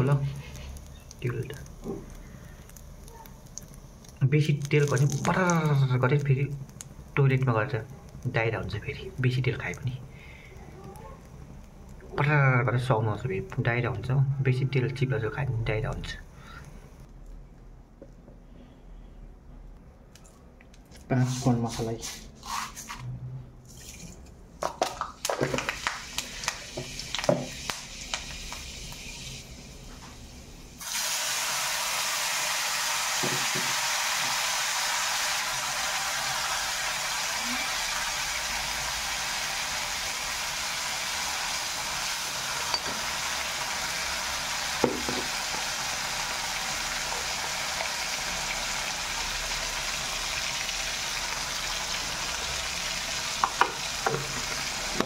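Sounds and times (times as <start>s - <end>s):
vegetables sizzling in hot oil: 0.0s - 14.1s, 25.2s - 55.0s.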